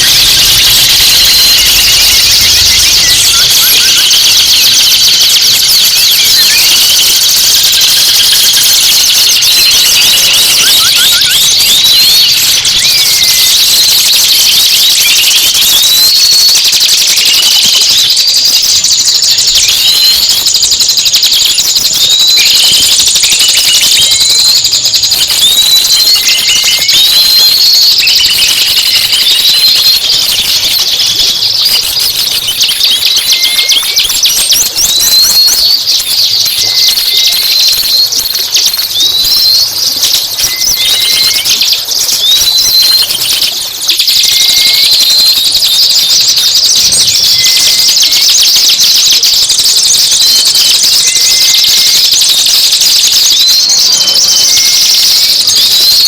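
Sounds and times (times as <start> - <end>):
bird whistle notes: 0.0 - 49.2, 50.5 - 56.0
songbirds chirping and trilling: 0.0 - 56.0.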